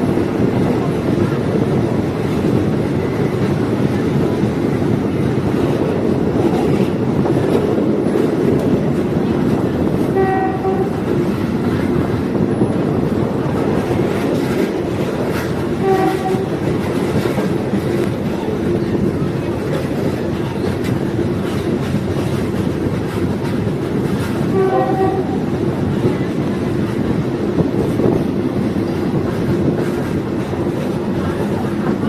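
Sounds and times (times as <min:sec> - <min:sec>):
diesel railcar rumbling on track: 0:00.0 - 0:32.0
train horn: 0:10.0 - 0:11.1, 0:15.8 - 0:16.7, 0:24.4 - 0:25.6.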